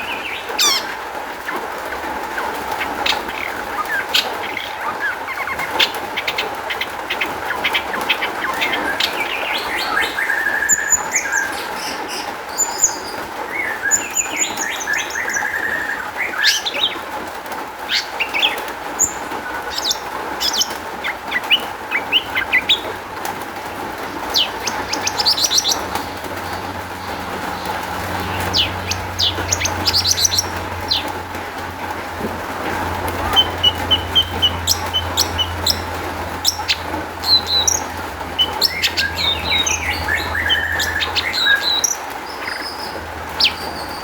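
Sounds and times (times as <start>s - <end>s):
shrike singing: 23.6s - 32.0s, 32.6s - 42.0s.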